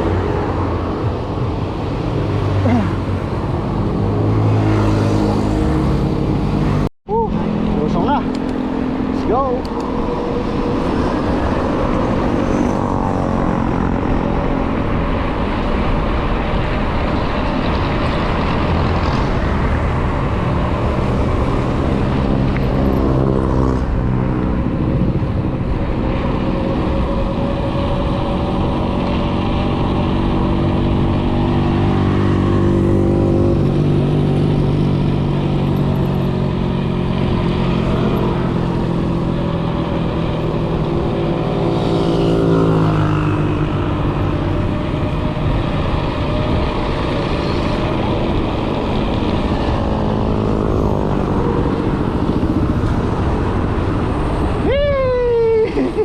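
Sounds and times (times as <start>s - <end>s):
steady hum from moving bike: 0.0s - 56.0s
wind rushing over microphone: 0.0s - 56.0s.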